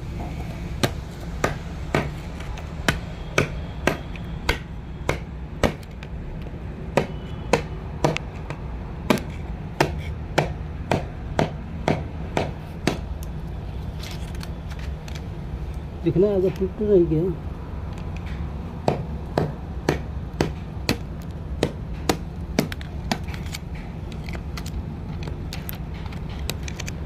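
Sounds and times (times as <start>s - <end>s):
hammer blows: 2.8s - 5.8s.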